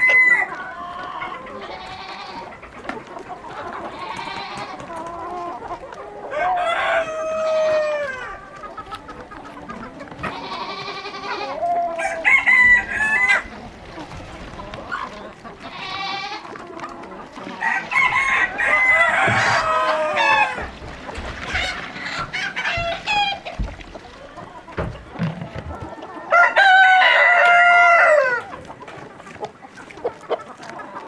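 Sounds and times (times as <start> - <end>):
chickens clucking: 0.0 - 31.0
rooster crowing: 6.3 - 8.3, 12.0 - 13.5, 17.6 - 20.8, 26.3 - 28.5.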